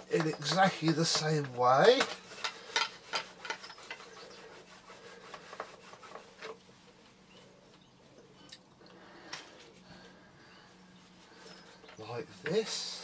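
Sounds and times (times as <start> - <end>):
hand scrubbing plastic: 0.0 - 7.2.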